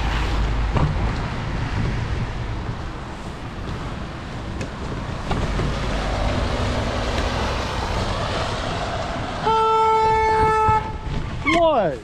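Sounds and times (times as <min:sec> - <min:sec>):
road traffic noise: 0:00.0 - 0:12.0
car horn blast: 0:09.4 - 0:11.1.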